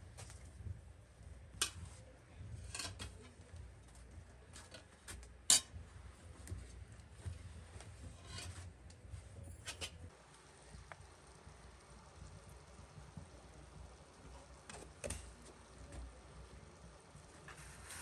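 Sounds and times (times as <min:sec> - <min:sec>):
steady low hum: 0:00.0 - 0:18.0
objects scraping and clicking: 0:08.1 - 0:08.7.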